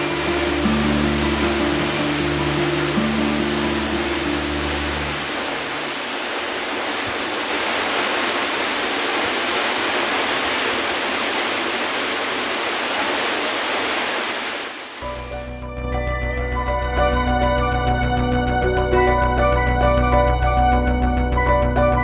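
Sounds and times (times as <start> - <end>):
waterfall rushing: 0.0 - 15.6.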